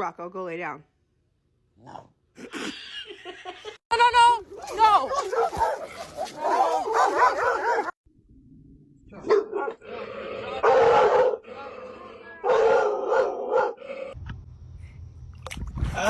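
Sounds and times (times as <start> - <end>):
dog barking and howling: 4.5 - 8.0, 9.2 - 14.2.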